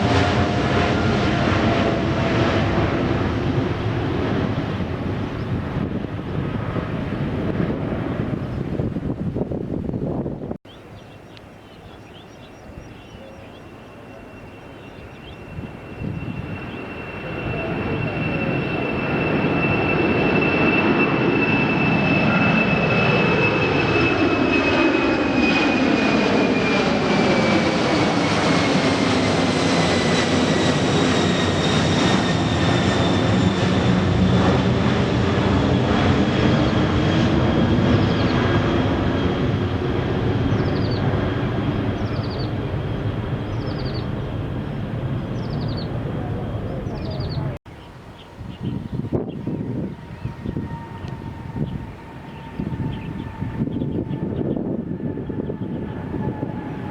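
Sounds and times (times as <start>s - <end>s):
jet engines passing: 0.0s - 56.9s
high engine whine: 13.3s - 56.9s.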